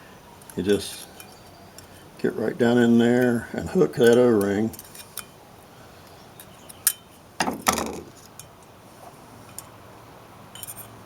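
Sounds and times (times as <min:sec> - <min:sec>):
metal tool clicking and scraping: 0:00.4 - 0:02.0, 0:04.0 - 0:05.4, 0:06.0 - 0:07.1, 0:07.9 - 0:08.7, 0:10.5 - 0:11.0.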